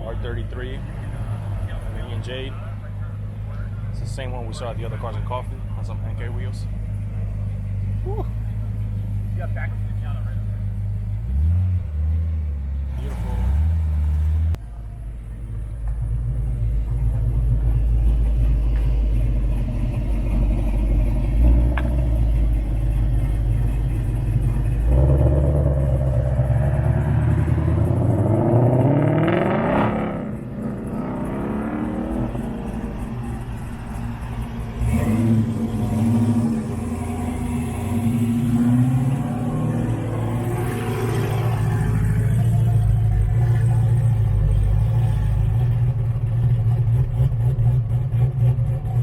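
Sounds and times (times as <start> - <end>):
car engine revving: 0.0 - 49.0.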